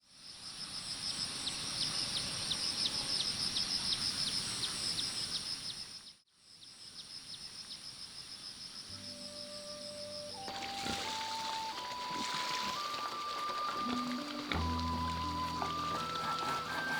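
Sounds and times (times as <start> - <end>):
high insect drone: 0.0 - 16.9
regular chirping: 6.9 - 16.9.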